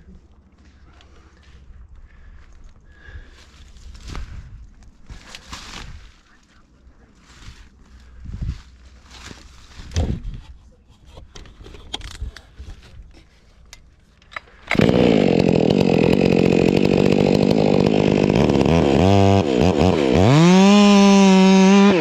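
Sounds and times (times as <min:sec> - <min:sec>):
chainsaw starting and revving: 0:14.3 - 0:22.0.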